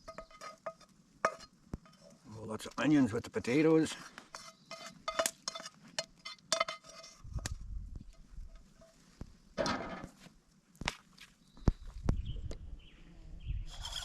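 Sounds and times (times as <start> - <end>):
metal utensil clinking on pan: 0.0 - 2.1, 4.3 - 7.2.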